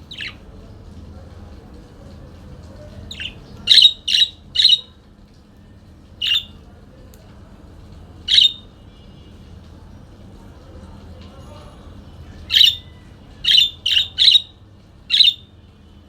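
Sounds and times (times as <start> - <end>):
parakeet calls: 0.0 - 0.4, 3.1 - 5.0, 6.2 - 6.6, 8.3 - 8.7, 12.5 - 15.5.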